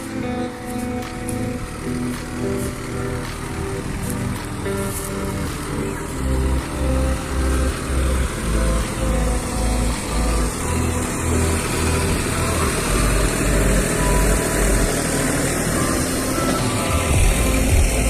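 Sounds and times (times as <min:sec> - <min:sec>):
music with pulsing bass beat: 0:00.0 - 0:18.0
tractor engine running: 0:00.0 - 0:18.0.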